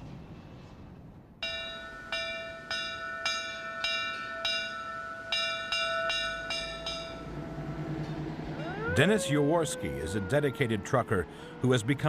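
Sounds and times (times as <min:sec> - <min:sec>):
metal bell ringing: 0:01.4 - 0:07.4.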